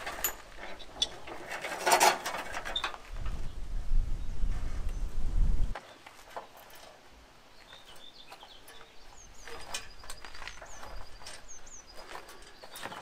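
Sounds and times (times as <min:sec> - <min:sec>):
small birds chirping: 0:07.1 - 0:13.0.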